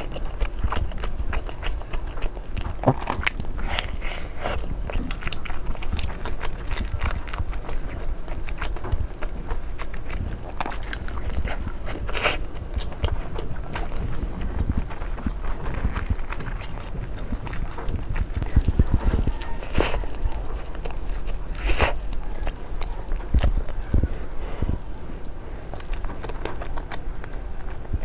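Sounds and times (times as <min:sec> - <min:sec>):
loud crunches: 0:00.0 - 0:28.0
person chewing seafood: 0:00.0 - 0:28.0.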